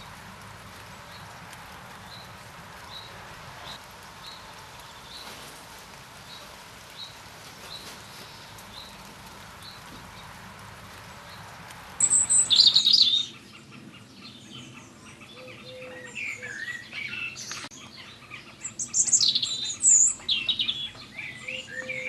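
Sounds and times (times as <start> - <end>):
rain: 0.0 - 22.0
wind: 0.0 - 22.0
small bird chirping: 11.2 - 22.0.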